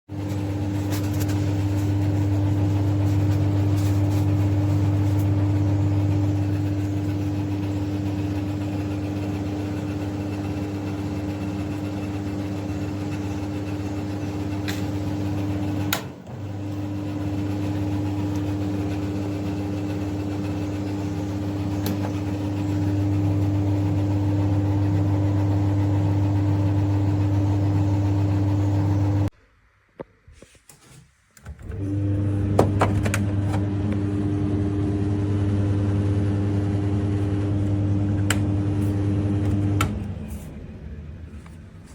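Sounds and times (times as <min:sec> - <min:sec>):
tumble dryer running: 0:00.1 - 0:29.3, 0:31.6 - 0:41.9
dryer click: 0:14.4 - 0:19.1, 0:21.6 - 0:23.5, 0:37.3 - 0:40.1.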